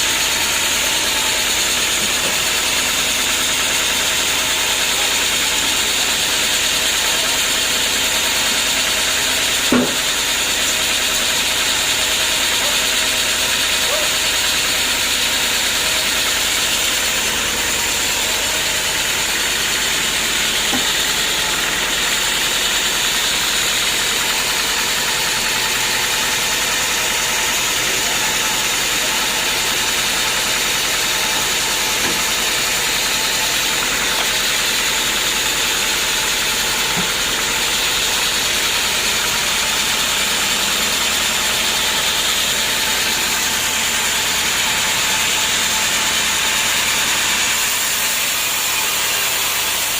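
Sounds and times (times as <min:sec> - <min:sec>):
sawmill engine running: 0:00.0 - 0:49.9.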